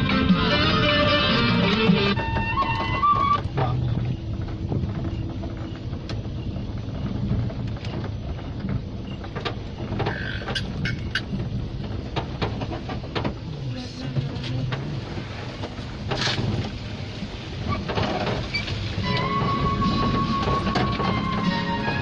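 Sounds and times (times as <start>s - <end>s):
music: 0.0s - 3.2s, 19.0s - 22.0s
vehicle engine running: 0.0s - 22.0s.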